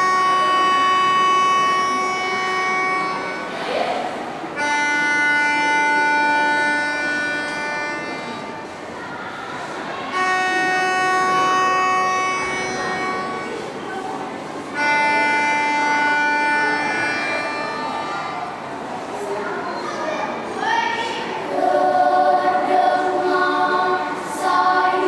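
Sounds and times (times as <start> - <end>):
sustained music chords: 10.1 - 13.9, 21.5 - 25.0.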